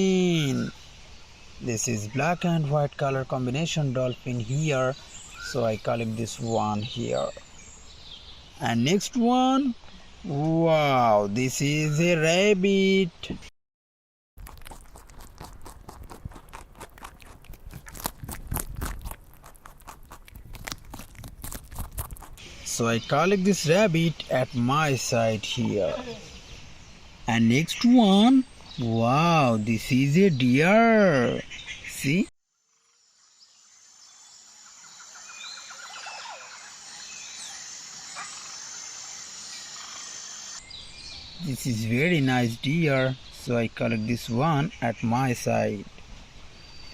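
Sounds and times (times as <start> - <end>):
birds chirping: 0.0 - 13.0, 14.7 - 32.3, 33.4 - 45.9
high insect hum: 32.5 - 43.3.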